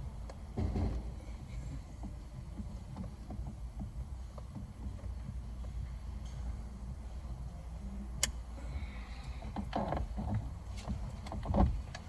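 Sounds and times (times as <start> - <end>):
steady low hum: 0.0 - 12.0
knock of parts: 0.6 - 1.2.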